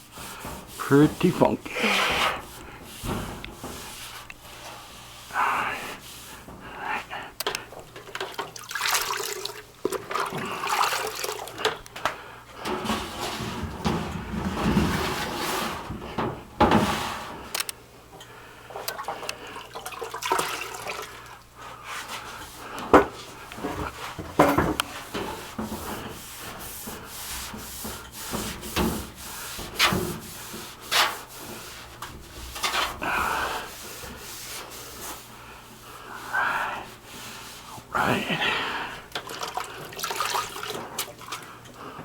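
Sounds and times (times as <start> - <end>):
scrubbing inside metal duct: 0.0 - 6.6, 12.6 - 17.5
water sloshing: 8.0 - 11.7, 39.1 - 41.5.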